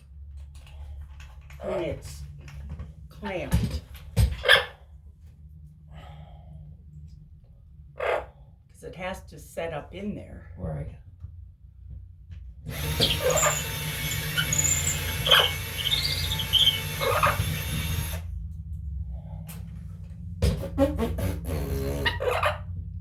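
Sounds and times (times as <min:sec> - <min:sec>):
power drill boring into ceiling: 0:12.7 - 0:18.2
parrot chirps: 0:12.8 - 0:18.1.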